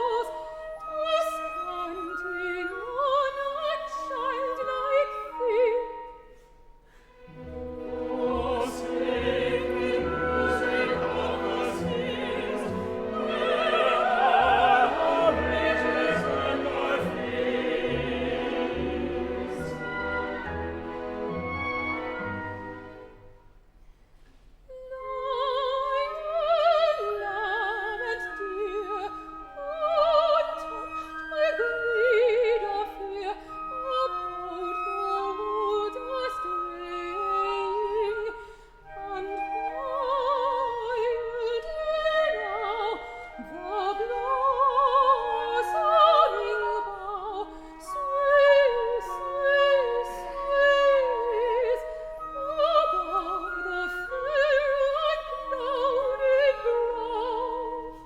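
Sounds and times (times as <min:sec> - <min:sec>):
soprano singing opera: 0:00.0 - 0:06.3, 0:07.5 - 0:20.5, 0:24.7 - 0:58.0
orchestral accompaniment: 0:07.0 - 0:23.6.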